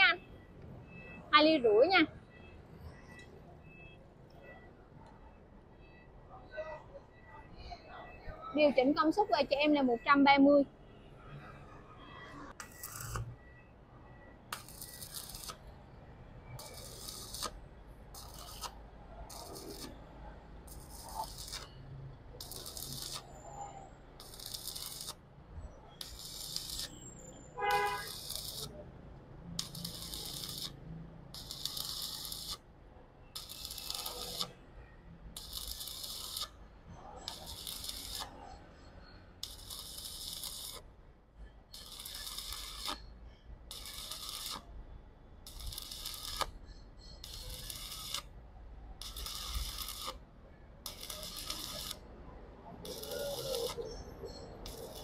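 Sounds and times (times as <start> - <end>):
welding arc crackling: 12.6 - 13.3, 14.5 - 15.8, 16.6 - 23.4, 24.2 - 25.2, 26.0 - 27.0, 27.6 - 28.9, 29.6 - 32.6, 33.4 - 34.6, 35.3 - 36.6, 37.2 - 38.4, 39.4 - 40.9, 41.7 - 43.1, 43.7 - 44.6, 45.4 - 46.6, 47.2 - 48.4, 49.0 - 50.2, 50.8 - 52.1, 52.8 - 54.0, 54.6 - 55.0.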